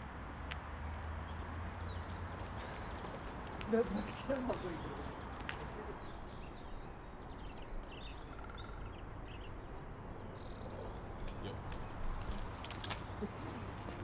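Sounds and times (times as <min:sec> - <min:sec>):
small birds chirping: 0:00.5 - 0:14.0
rapid bird trill: 0:06.0 - 0:09.6.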